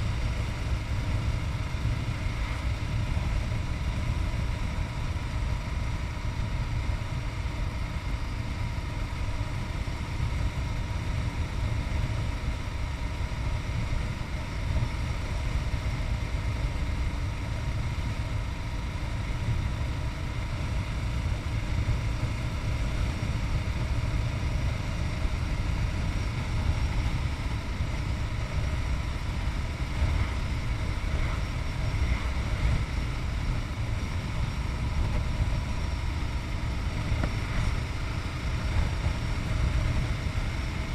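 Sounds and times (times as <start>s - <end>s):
wind rumble on microphone: 0.0s - 40.9s
motorcycle engine running: 20.6s - 40.9s.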